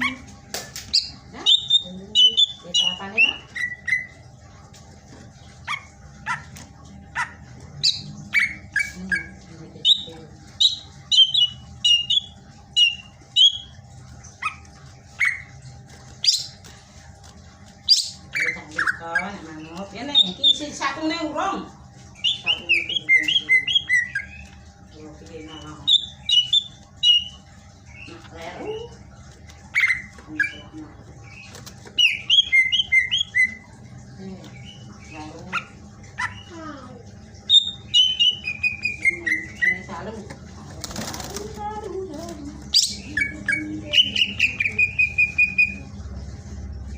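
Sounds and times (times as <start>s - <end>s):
bird chirping and whistling: 0.9s - 4.2s, 9.9s - 13.8s, 17.9s - 19.2s, 25.8s - 28.1s, 29.8s - 33.7s, 37.5s - 39.9s, 42.7s - 45.8s.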